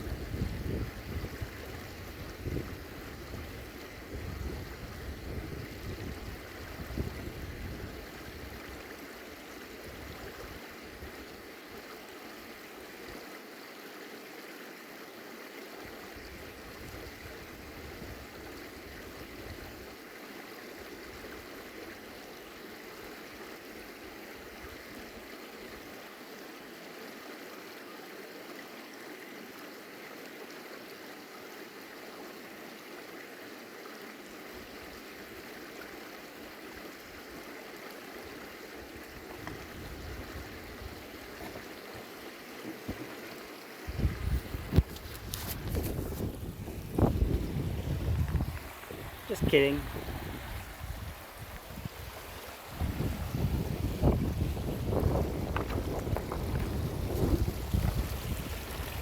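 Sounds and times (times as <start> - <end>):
wind buffeting microphone: 0.0 - 8.6, 43.9 - 59.0
stream rushing: 0.0 - 59.0.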